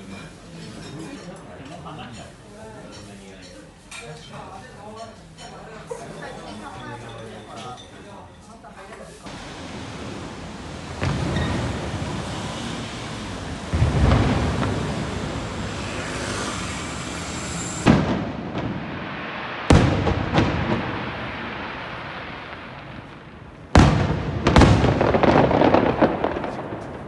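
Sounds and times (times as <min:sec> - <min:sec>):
firework shells booming: 0:09.3 - 0:27.0.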